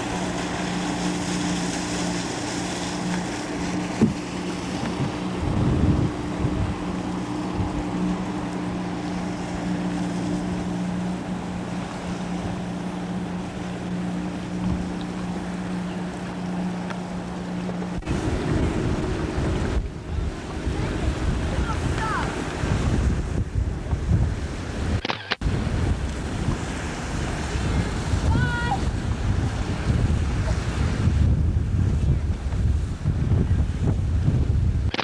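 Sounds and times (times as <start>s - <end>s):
wind noise on microphone: 0.0s - 10.6s, 17.9s - 35.0s
water rushing past boat: 0.0s - 35.0s.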